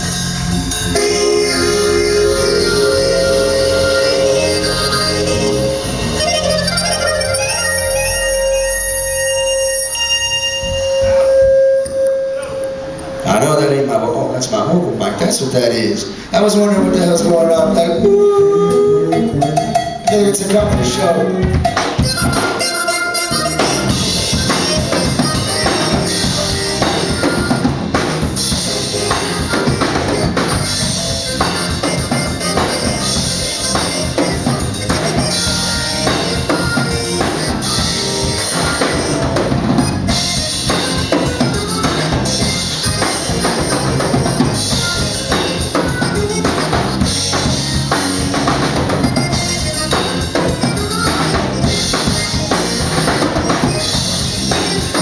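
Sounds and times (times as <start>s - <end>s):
live band playing instrumental: 0.0s - 13.4s, 16.1s - 55.0s
bass drum and snare: 20.6s - 22.7s, 23.4s - 55.0s.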